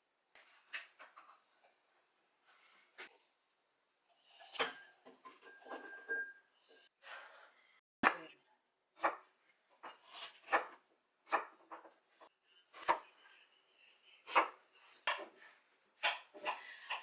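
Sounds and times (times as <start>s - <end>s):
kitchen items knocking and clattering: 4.5s - 6.5s.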